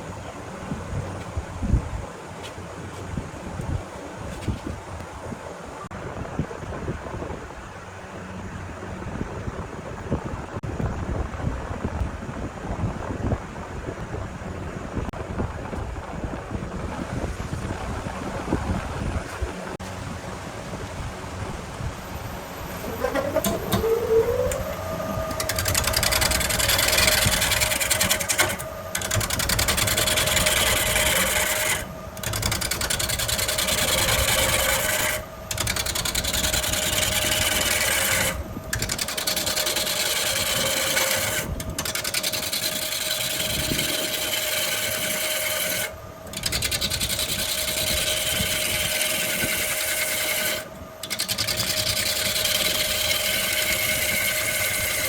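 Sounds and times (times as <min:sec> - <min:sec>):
wood lathe motor whine: 0:21.2 - 0:55.0
turning tool rasping on wood: 0:22.8 - 0:55.0.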